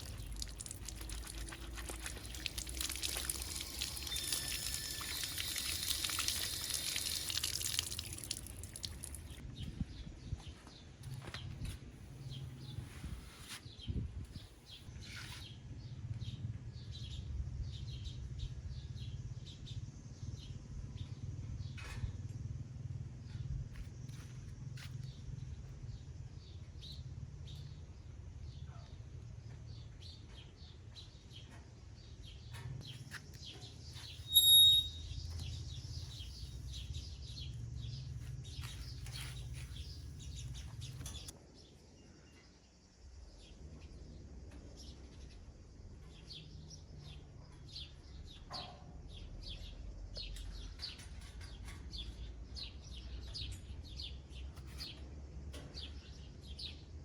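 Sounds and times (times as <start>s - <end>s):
small birds chirping: 0.0s - 22.0s, 23.9s - 57.0s
high whistle-like tone: 34.3s - 35.1s.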